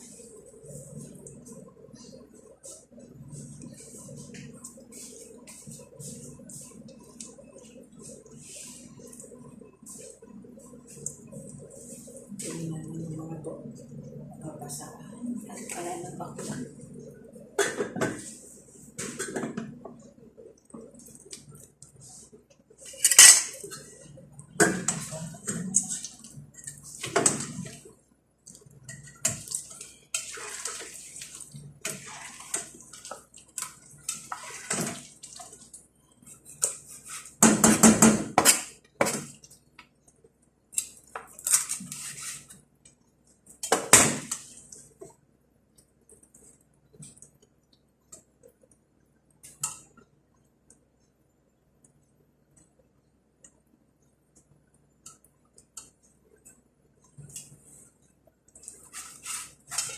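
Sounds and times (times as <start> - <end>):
dishes and utensils clattering: 22.9 - 23.9.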